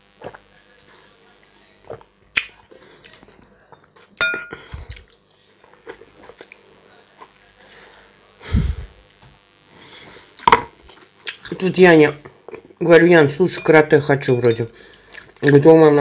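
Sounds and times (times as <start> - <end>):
metal fork clinking on bowl: 4.2 - 4.6, 13.5 - 14.6
person chewing: 4.5 - 6.6, 14.9 - 15.6.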